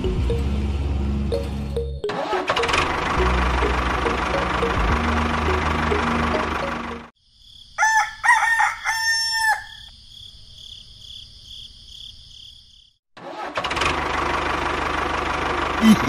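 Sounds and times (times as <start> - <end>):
rooster crowing: 7.7 - 9.9.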